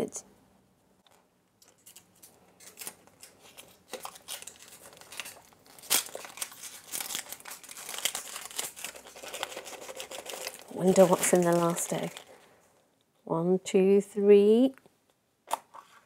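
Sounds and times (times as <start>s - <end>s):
wrapping crinkling and tearing: 1.1s - 12.6s.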